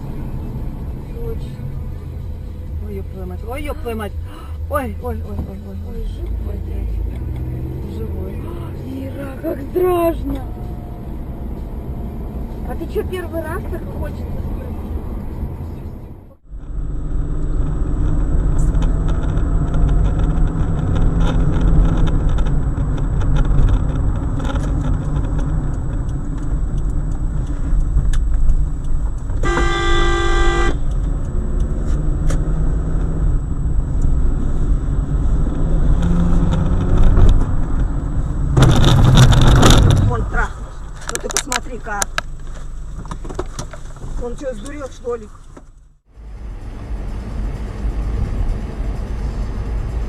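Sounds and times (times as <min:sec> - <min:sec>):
car engine and road rumble: 0:00.0 - 0:50.0
car horn: 0:29.4 - 0:30.9.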